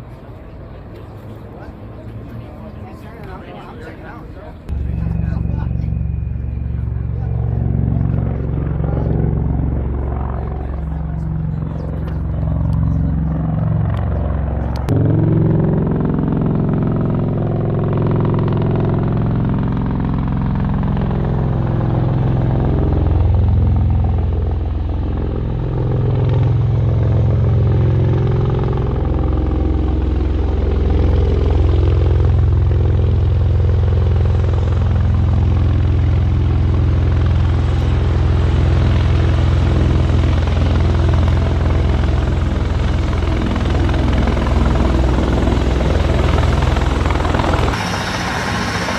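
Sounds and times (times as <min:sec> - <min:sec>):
heavy engines droning: 0:00.0 - 0:48.9.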